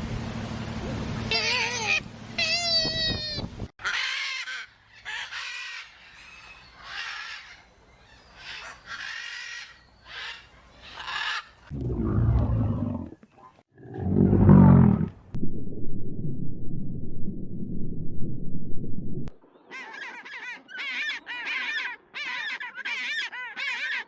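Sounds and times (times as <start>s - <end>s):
high-pitched animal calls: 1.3s - 3.4s
deep animal calls: 11.7s - 13.2s, 13.8s - 15.3s.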